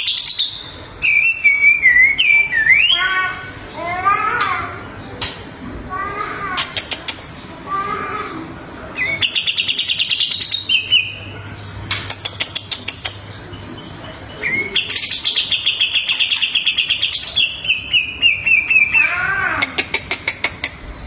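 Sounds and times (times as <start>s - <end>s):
songbird singing: 0.0s - 5.5s, 8.8s - 19.7s.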